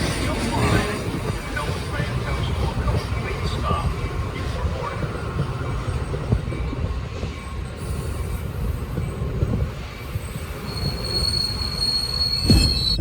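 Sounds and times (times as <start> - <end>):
train wheels rumbling on rails: 0.0 - 13.0
high wheel squeal: 10.0 - 13.0.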